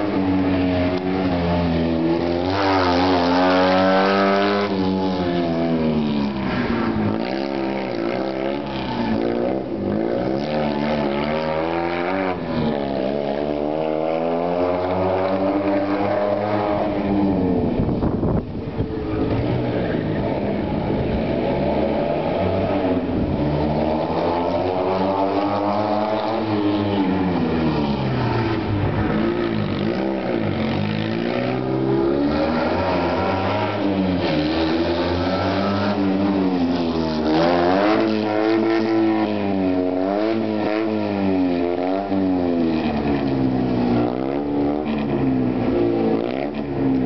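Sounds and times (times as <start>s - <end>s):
car engine revving: 0.0s - 47.0s.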